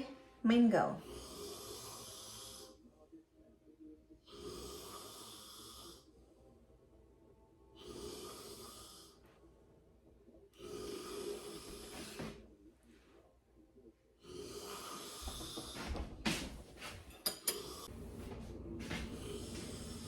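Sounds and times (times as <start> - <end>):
slow faint breathing: 10.6 - 13.2, 14.2 - 20.0.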